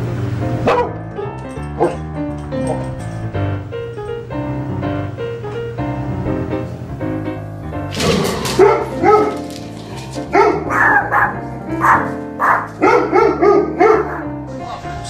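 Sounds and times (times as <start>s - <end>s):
background music: 0.0s - 15.0s
dog barking: 0.7s - 1.0s, 1.8s - 2.0s, 8.1s - 9.5s, 10.3s - 14.4s.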